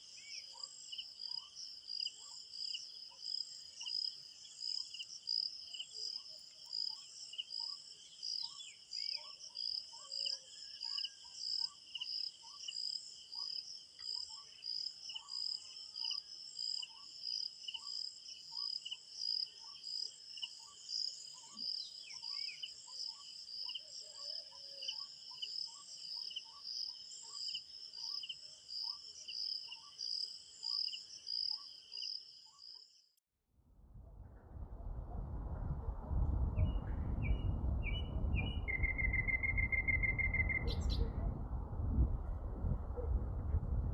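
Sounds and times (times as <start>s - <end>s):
crickets chirping: 0.0s - 33.1s, 37.2s - 41.2s
rushing noise: 33.8s - 43.9s
bird calls: 36.7s - 41.3s.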